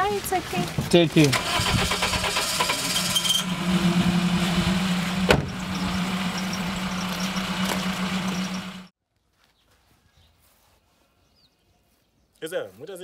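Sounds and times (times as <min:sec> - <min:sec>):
car engine running: 0:01.3 - 0:08.9.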